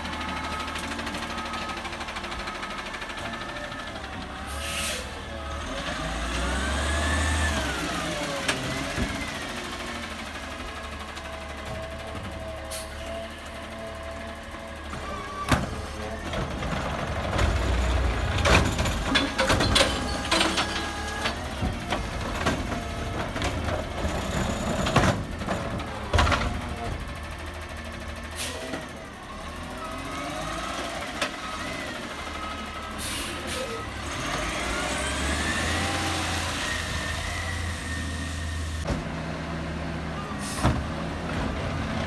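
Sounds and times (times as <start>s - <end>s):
garbage truck engine rumbling: 0.0s - 42.0s
metal clanks and bangs: 15.5s - 27.1s.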